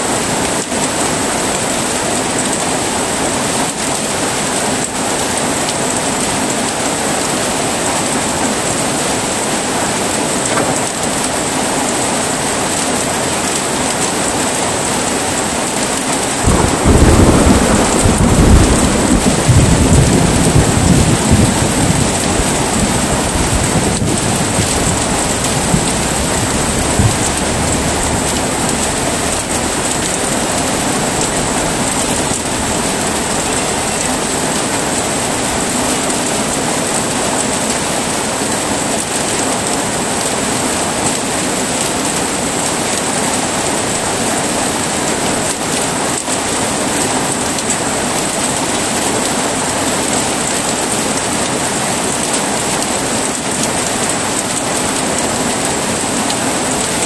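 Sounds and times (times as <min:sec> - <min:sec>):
heavy rain falling: 0:00.0 - 0:57.0
low thunder rumble: 0:16.4 - 0:35.4.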